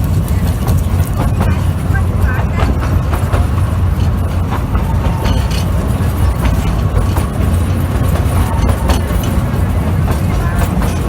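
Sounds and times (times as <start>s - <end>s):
train rumbling: 0.0s - 11.0s
clicks and clanks: 2.3s - 11.0s.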